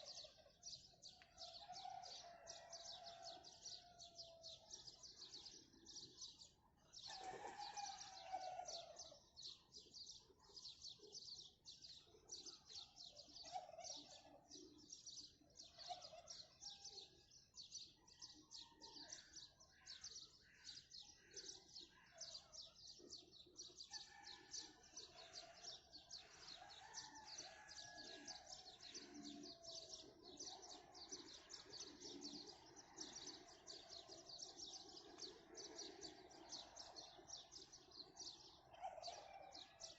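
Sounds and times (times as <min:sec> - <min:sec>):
small birds chirping: 0:17.4 - 0:39.8.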